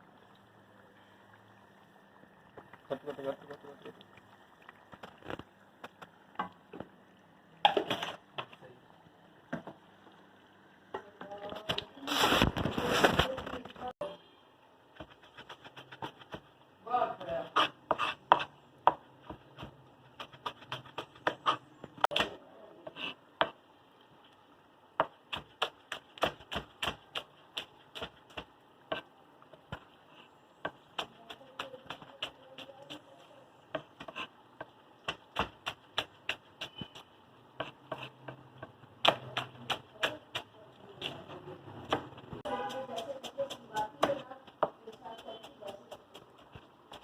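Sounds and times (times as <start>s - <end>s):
knife chopping on cutting board: 17.5s - 23.6s, 35.0s - 37.0s, 37.6s - 41.2s.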